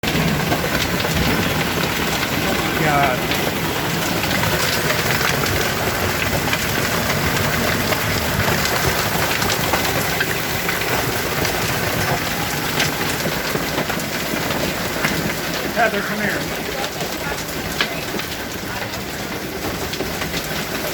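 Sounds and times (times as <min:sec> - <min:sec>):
hailstones pelting down: 0:00.0 - 0:20.9.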